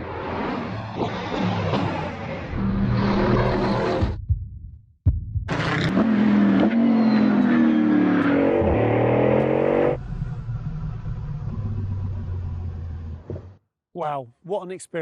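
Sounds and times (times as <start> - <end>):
car engine accelerating hard: 5.5 - 13.5.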